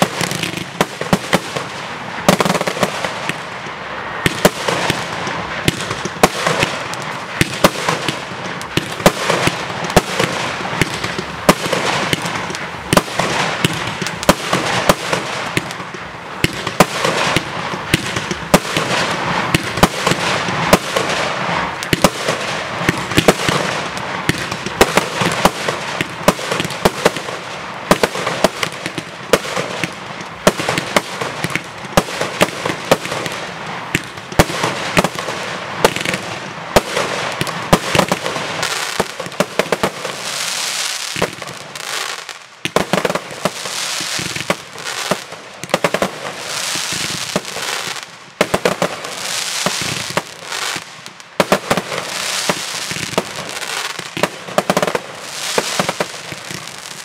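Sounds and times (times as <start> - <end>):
fireworks bangs: 0.0 - 57.0
steady noisy hiss: 0.0 - 57.0.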